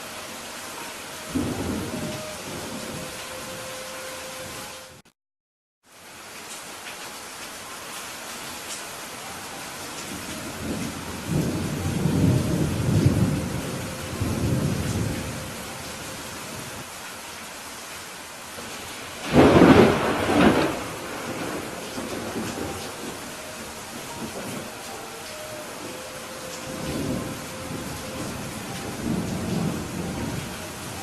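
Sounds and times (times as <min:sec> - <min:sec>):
steady rain: 0:00.0 - 0:05.1, 0:05.8 - 0:31.0
thunder rumbling: 0:01.2 - 0:03.7, 0:10.1 - 0:16.8, 0:18.7 - 0:31.0
thunderclap: 0:19.2 - 0:23.2.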